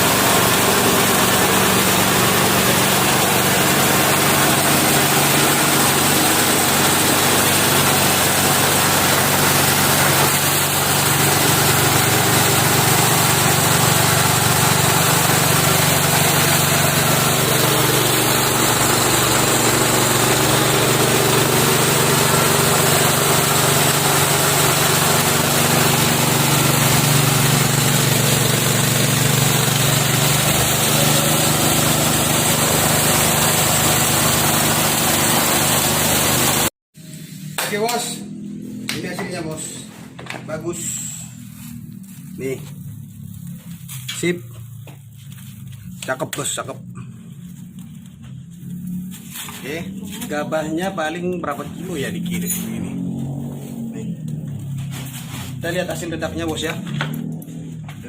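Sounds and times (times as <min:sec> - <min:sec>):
rice mill noisy hiss: 0:00.0 - 0:37.7
engine drone: 0:00.0 - 0:58.0.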